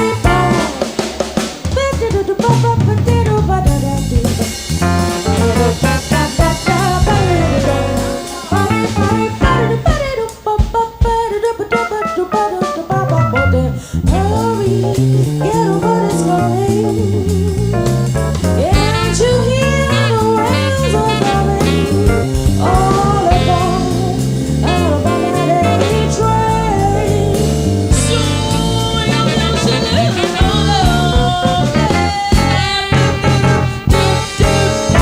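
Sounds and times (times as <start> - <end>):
walking bass: 0.0 - 10.8, 12.8 - 35.0
drums: 0.0 - 35.0
chords: 4.4 - 10.4, 11.8 - 35.0
lead melody with vibrato: 4.9 - 9.9, 18.7 - 35.0.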